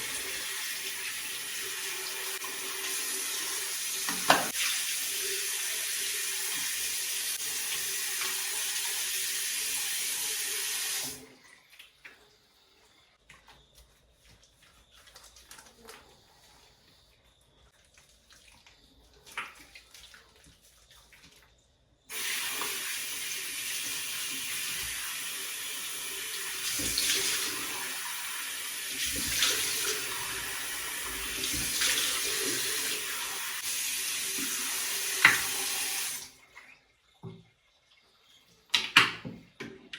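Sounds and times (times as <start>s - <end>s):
tap water running into sink: 0.0s - 11.3s, 22.1s - 36.3s.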